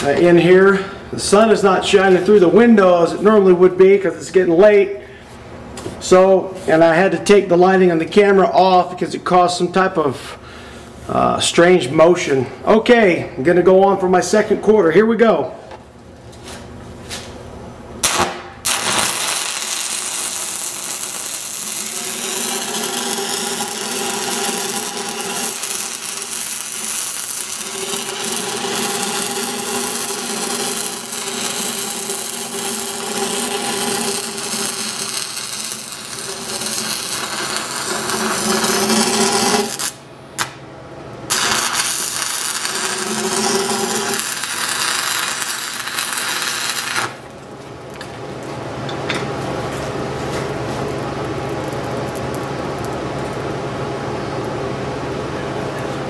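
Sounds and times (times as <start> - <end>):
welding arc crackling: 18.0 - 40.6, 41.3 - 48.5, 49.6 - 54.7
welding arc striking crack: 18.0 - 40.6, 41.3 - 47.3, 50.8 - 53.6.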